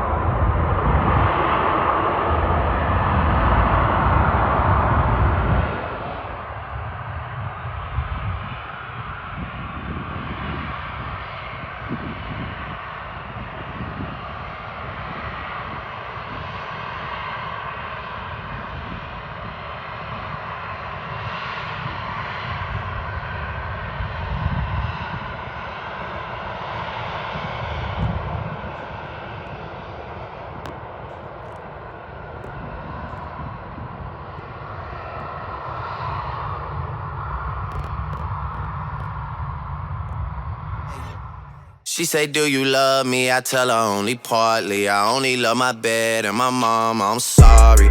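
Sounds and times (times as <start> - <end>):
low rumbling: 47.4 - 47.9.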